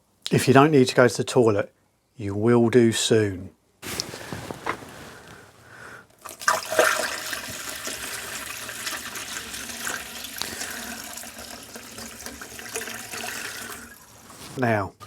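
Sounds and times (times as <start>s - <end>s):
water pouring into radiator: 6.2s - 14.3s.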